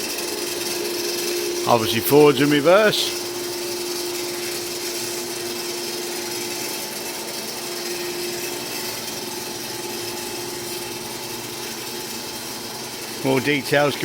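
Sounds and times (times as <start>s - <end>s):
electric rotation drive whining: 0.0s - 14.0s
steady mechanical noise: 0.0s - 14.0s.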